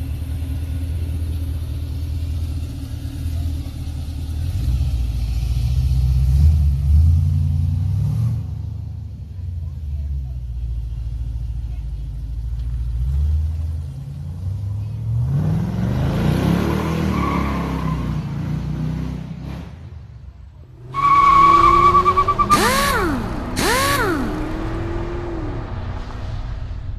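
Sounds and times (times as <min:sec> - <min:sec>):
car engine revving and accelerating: 0:04.5 - 0:08.7, 0:12.6 - 0:19.8, 0:20.7 - 0:26.9.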